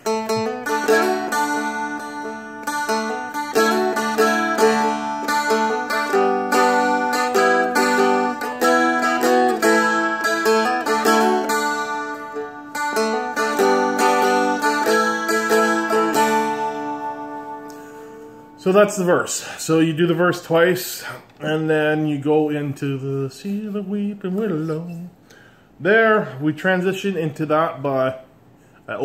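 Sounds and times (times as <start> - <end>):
picked dulcimer melody: 0.0 - 18.6.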